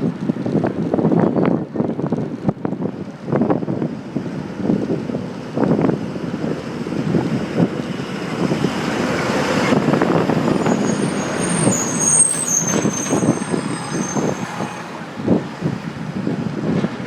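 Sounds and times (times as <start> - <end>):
traffic noise: 0.0 - 17.0
high-pitched squeal: 8.4 - 15.8.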